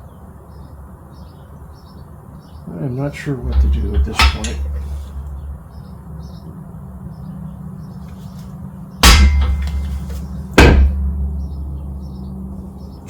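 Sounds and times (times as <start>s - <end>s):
steady low hum: 2.8s - 13.0s
hammer blows on metal: 9.0s - 11.5s.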